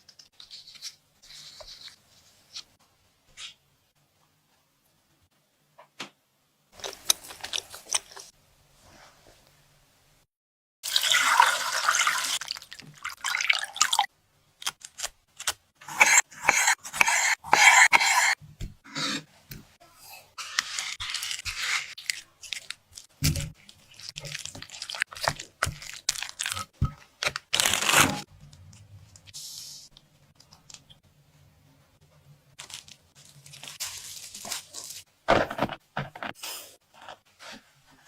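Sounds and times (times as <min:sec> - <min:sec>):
crunching and crinkling: 0:06.8 - 0:08.3, 0:20.9 - 0:28.3, 0:32.6 - 0:36.4.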